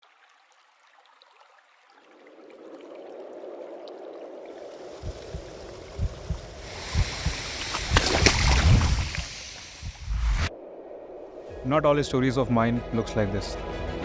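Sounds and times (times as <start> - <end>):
waterfall stream rushing: 4.6 - 10.2
low thumps: 5.0 - 10.5.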